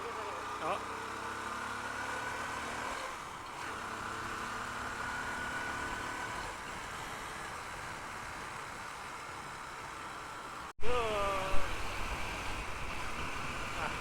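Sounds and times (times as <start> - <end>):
wind noise: 11.4 - 14.0.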